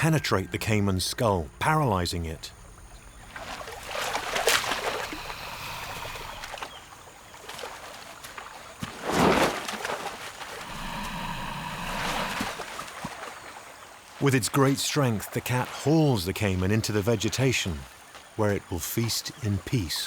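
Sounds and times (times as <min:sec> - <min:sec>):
water splashing and sloshing: 0:02.6 - 0:18.6.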